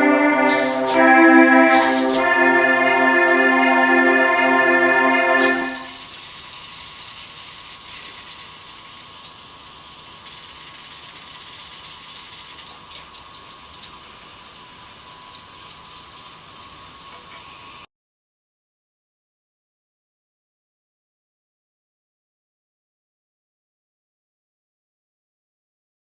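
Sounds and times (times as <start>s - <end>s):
keyboard chord: 0.0s - 6.0s.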